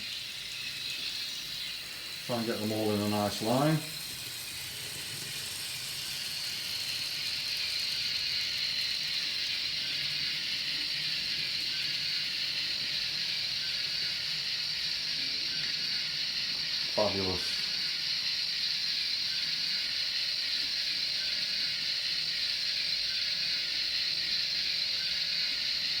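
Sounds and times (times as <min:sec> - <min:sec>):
faint running hum: 0:00.0 - 0:14.5
locomotive steam hiss from speakers: 0:00.0 - 0:26.0.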